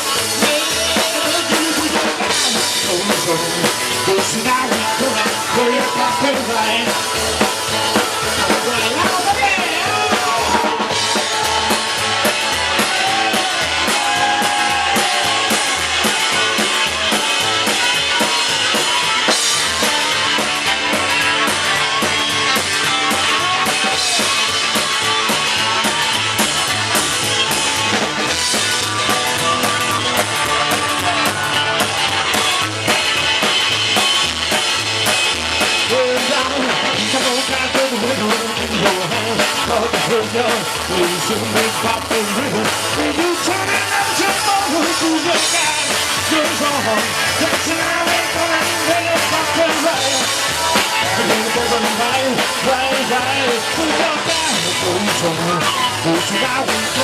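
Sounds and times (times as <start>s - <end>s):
drum kit beat: 0.0s - 57.0s
lead guitar with bending notes: 0.0s - 57.0s
rock band playing: 0.0s - 57.0s.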